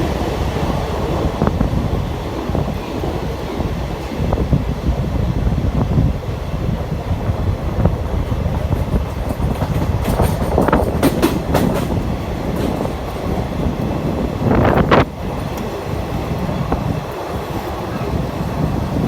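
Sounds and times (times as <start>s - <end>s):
train rumbling on rails: 0.0s - 19.0s
wheel clicks over rail joints: 8.5s - 13.4s.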